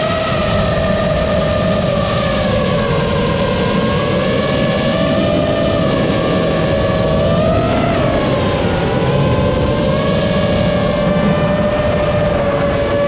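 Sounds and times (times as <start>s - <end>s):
rushing noise: 3.9s - 13.0s
drone motors whining: 4.0s - 13.0s.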